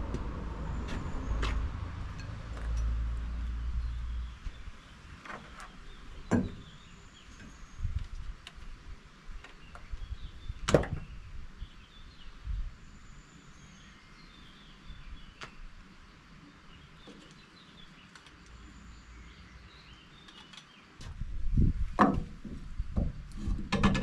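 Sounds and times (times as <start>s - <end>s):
dull thump: 22.0s - 24.0s.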